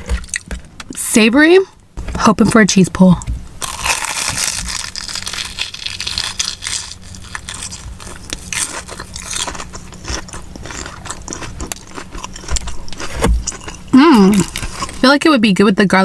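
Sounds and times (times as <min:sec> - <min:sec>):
crunchy food biting and chewing: 0:03.6 - 0:15.0.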